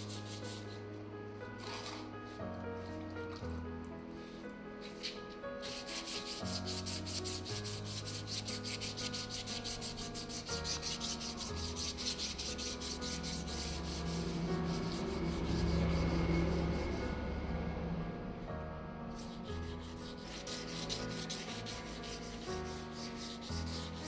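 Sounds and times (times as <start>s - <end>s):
sandpaper rubbing on metal: 0.0s - 0.7s, 4.8s - 17.1s, 19.2s - 24.0s.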